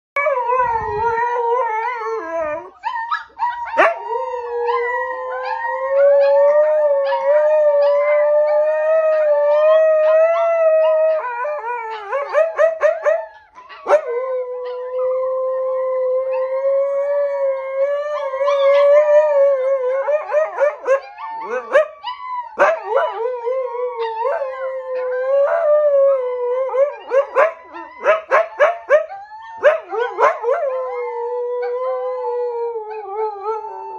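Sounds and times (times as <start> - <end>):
dog howling: 0.2 - 33.9
puppies howling: 0.2 - 33.9
dogs yipping: 2.7 - 4.1, 11.9 - 14.9, 20.2 - 23.2, 27.0 - 30.6.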